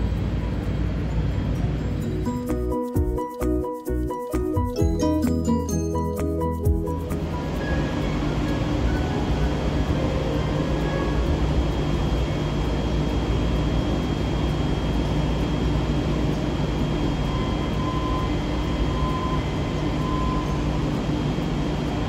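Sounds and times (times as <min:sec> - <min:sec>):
tram equipment humming: 0:00.0 - 0:22.0
faint high whine: 0:05.0 - 0:22.0.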